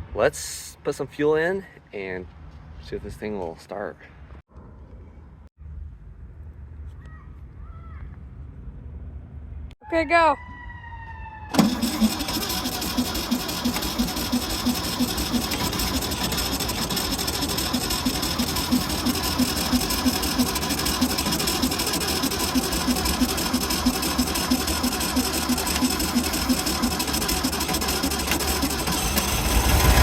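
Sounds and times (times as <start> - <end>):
starter cranking engine chugging: 11.5 - 30.0.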